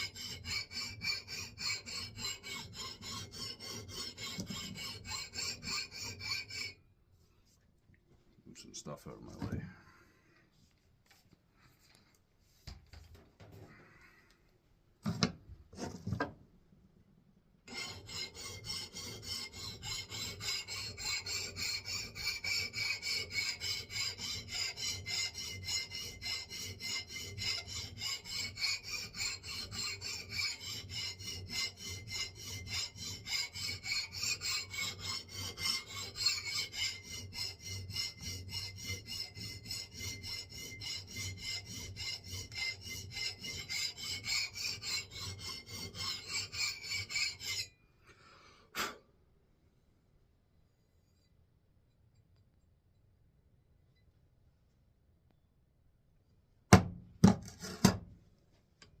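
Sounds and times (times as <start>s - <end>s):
file scraping steel: 0.0s - 6.9s, 15.1s - 16.3s, 17.6s - 47.9s, 57.2s - 58.1s.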